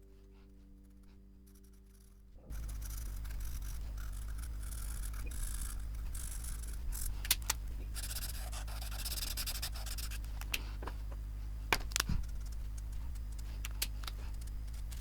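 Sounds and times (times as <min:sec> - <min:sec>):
pen nib scratching on paper: 0:00.1 - 0:10.8, 0:11.8 - 0:15.0
sharp light clicks: 0:03.0 - 0:07.6, 0:11.8 - 0:15.0.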